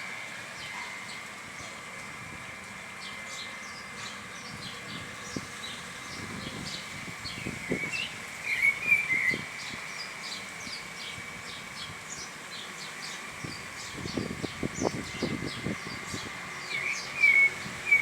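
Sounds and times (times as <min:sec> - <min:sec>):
birds chirping: 0:00.5 - 0:18.0
loud warbling bird call: 0:06.6 - 0:09.8, 0:16.0 - 0:18.0.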